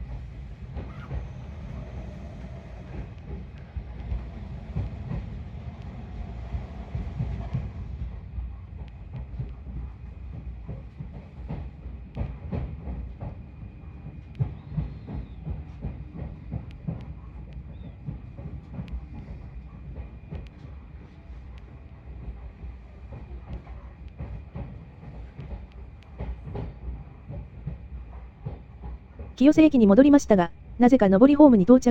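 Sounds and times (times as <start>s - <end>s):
wheels clacking over rail joints: 0.0s - 8.1s
train wheels rumbling: 0.0s - 31.9s.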